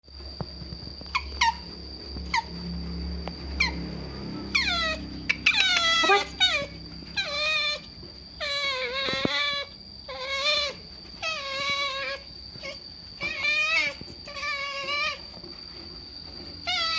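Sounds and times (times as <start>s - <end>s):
otter squealing: 3.5s - 15.4s, 16.5s - 16.9s.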